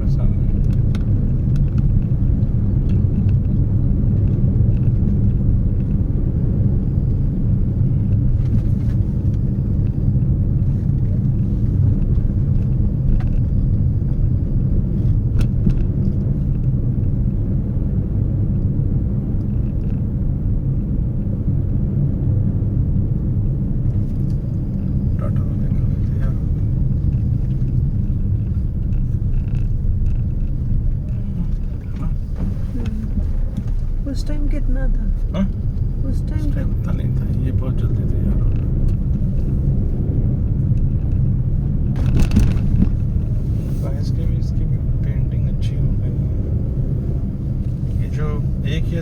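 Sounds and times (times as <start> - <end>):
moving car rumble: 0.0 - 49.0.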